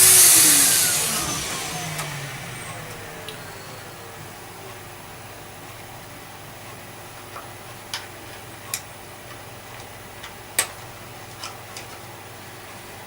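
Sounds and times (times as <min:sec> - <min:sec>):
plastic parts clicking and tapping: 0:07.3 - 0:12.1.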